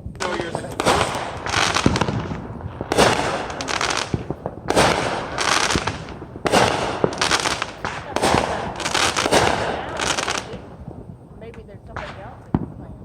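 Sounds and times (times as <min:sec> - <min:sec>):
fireworks crackling pops: 0:00.0 - 0:13.0.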